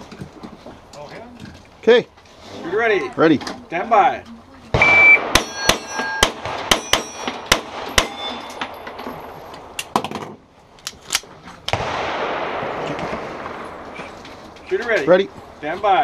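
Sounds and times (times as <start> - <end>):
pistol shots: 4.7 - 9.0, 11.7 - 14.1
steel plate ringing: 4.8 - 9.0.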